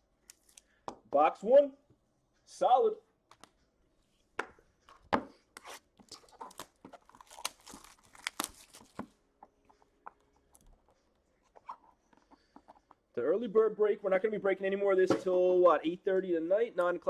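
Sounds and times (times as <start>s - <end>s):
packaging being torn open: 6.1s - 9.0s.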